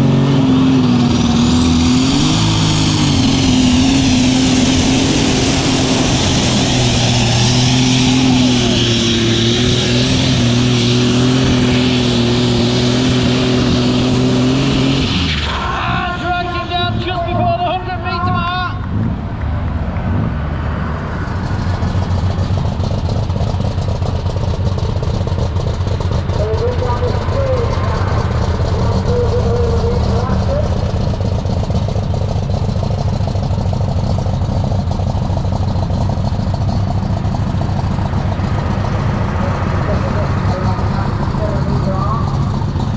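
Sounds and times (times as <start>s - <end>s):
tractor engine running flat out: 0.0s - 42.9s.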